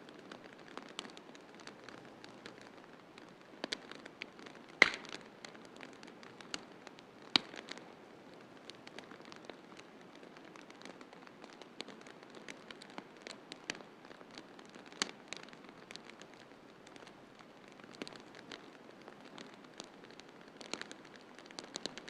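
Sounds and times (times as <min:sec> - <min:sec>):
wood fire crackling: 0:00.0 - 0:22.0
sharp fire pops: 0:03.6 - 0:05.3, 0:07.3 - 0:07.8.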